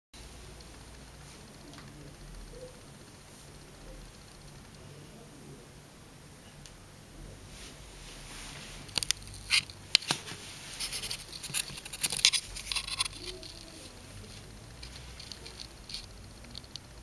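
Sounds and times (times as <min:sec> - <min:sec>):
small claws scratching and tapping: 0:08.9 - 0:17.0.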